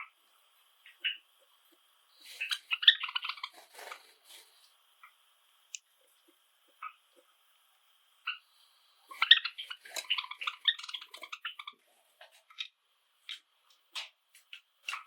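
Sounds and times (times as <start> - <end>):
sparrows chirping: 0.8 - 1.2, 2.1 - 4.7, 8.2 - 12.7
bird song clicking and chirping: 2.2 - 4.0, 9.1 - 11.8.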